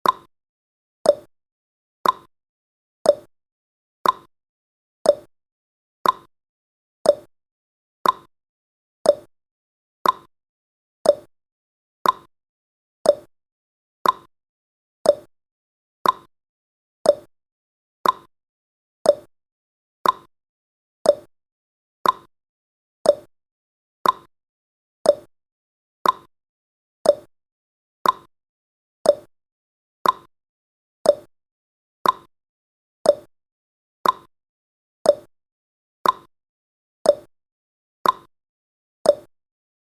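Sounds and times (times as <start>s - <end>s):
countdown timer blips: 0.0s - 0.3s, 1.1s - 1.3s, 2.0s - 2.3s, 3.1s - 3.3s, 4.0s - 4.3s, 5.1s - 5.3s, 6.0s - 6.3s, 7.0s - 7.3s, 8.0s - 8.3s, 9.0s - 9.3s, 10.0s - 10.3s, 11.0s - 11.3s, 12.0s - 12.3s, 13.0s - 13.3s, 14.0s - 14.3s, 15.0s - 15.3s, 16.0s - 16.3s, 17.0s - 17.3s, 18.0s - 18.3s, 19.0s - 19.3s, 20.0s - 20.3s, 21.0s - 21.3s, 22.0s - 22.3s, 23.0s - 23.3s, 24.0s - 24.3s, 25.0s - 25.3s, 26.0s - 26.3s, 27.0s - 27.3s, 28.0s - 28.3s, 29.0s - 29.3s, 30.0s - 30.3s, 31.0s - 31.3s, 32.0s - 32.3s, 33.0s - 33.3s, 34.0s - 34.3s, 35.1s - 35.3s, 36.0s - 36.3s, 37.1s - 37.3s, 38.0s - 38.3s, 39.1s - 39.3s.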